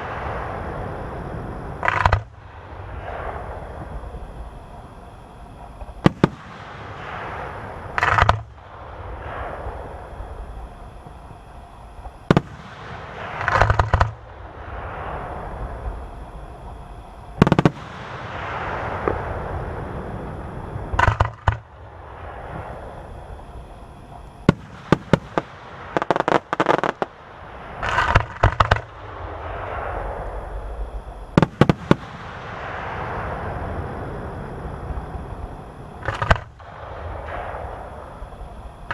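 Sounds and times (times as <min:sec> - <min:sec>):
fireworks bangs: 0:00.0 - 0:04.5, 0:05.6 - 0:11.2, 0:12.0 - 0:16.1, 0:17.3 - 0:23.3, 0:24.4 - 0:34.2, 0:34.9 - 0:38.9
continuous wash of noise: 0:00.0 - 0:38.9
rattling clusters of cracks: 0:01.8 - 0:02.3, 0:08.0 - 0:08.5, 0:13.2 - 0:14.2, 0:27.8 - 0:28.9, 0:36.0 - 0:36.6.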